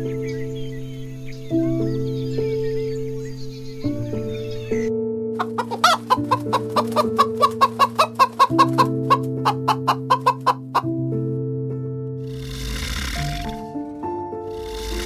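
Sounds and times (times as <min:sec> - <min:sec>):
soft piano music: 0:00.0 - 0:15.0
chickens clucking: 0:05.4 - 0:10.9.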